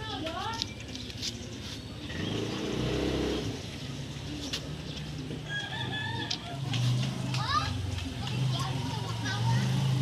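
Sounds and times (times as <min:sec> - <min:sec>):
vehicle engine passing by: 0:02.0 - 0:10.0.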